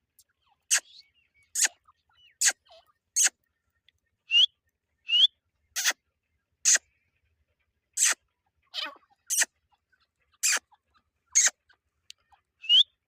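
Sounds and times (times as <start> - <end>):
partridges calling harshly: 0.5 - 3.4, 5.1 - 6.0, 6.6 - 6.9, 7.9 - 8.2, 8.8 - 13.0.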